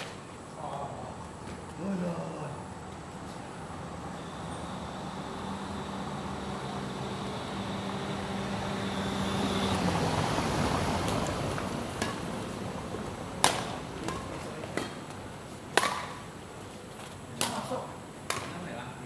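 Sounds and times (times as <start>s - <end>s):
vehicle-like rumble: 1.1s - 15.4s
racket hitting shuttlecock: 11.2s - 16.3s, 17.0s - 18.6s.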